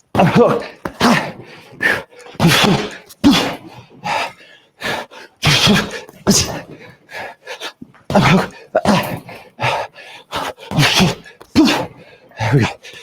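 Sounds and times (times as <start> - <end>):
man exhaling and grunting: 0.2 - 3.7, 8.1 - 9.8.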